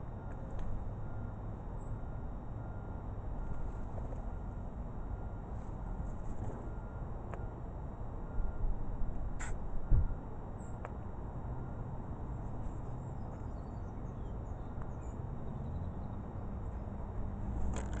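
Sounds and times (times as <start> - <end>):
low steady rumble: 0.0 - 18.0
faint high chirping: 13.0 - 16.3.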